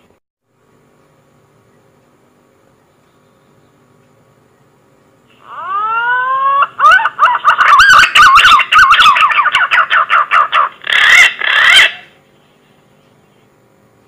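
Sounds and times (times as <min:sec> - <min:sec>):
warbling bird call whistles: 0:05.4 - 0:12.2.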